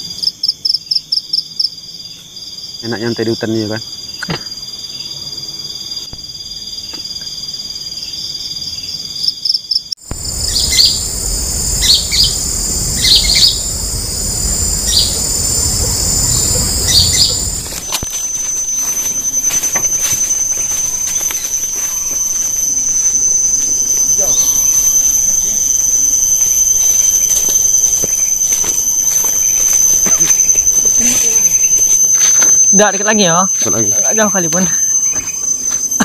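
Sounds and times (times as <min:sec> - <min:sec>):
insects droning: 0:00.0 - 0:08.8, 0:10.0 - 0:36.0
bird chirping: 0:10.1 - 0:17.9
low rumble: 0:10.1 - 0:18.0, 0:25.3 - 0:33.2.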